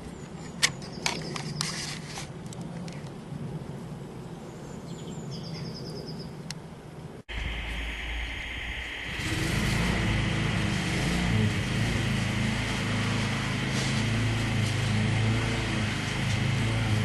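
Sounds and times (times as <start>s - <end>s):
engine humming: 7.3s - 17.0s.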